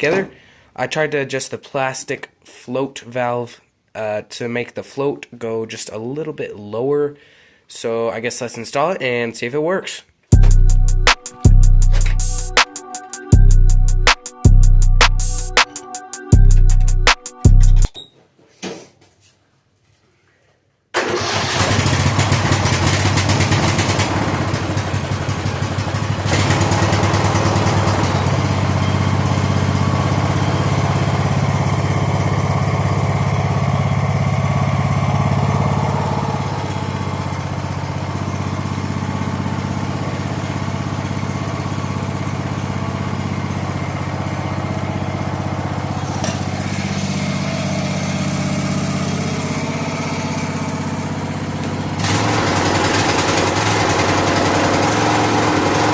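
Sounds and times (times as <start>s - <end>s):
lawn tractor engine running: 21.0s - 55.9s.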